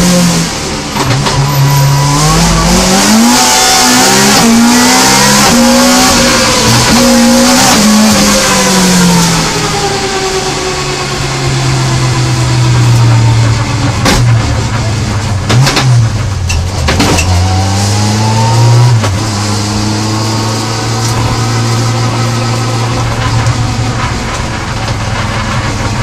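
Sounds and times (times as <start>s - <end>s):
car engine revving in cabin: 0.0s - 26.0s
sharp knocks: 13.9s - 17.4s.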